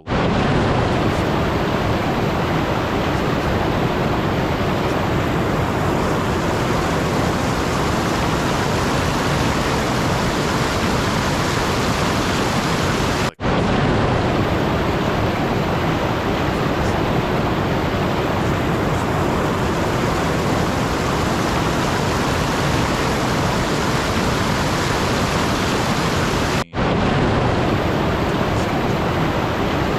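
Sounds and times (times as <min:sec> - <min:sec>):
loud rushing hiss: 0:05.1 - 0:13.4, 0:17.6 - 0:26.7.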